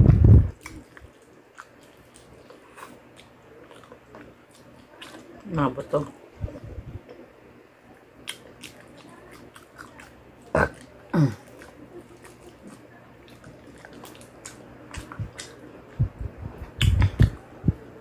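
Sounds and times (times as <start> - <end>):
chewing mouth clicks and smacks: 0.6 - 5.3, 8.2 - 15.6, 16.6 - 17.4.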